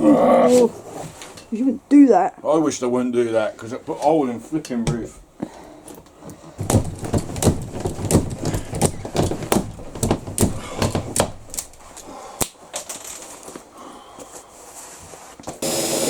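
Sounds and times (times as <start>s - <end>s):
sharp knocks: 6.6s - 12.1s.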